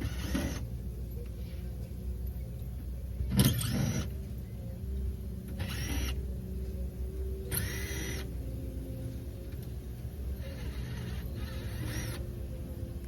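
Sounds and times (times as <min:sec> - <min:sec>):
power drill whining: 0:00.0 - 0:00.6, 0:07.5 - 0:08.2, 0:10.4 - 0:12.2
steady low hum: 0:00.0 - 0:13.0.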